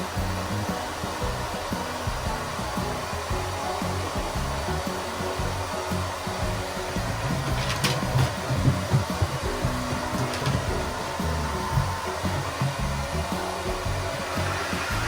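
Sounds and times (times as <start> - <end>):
hair dryer blowing air: 0.0 - 15.0.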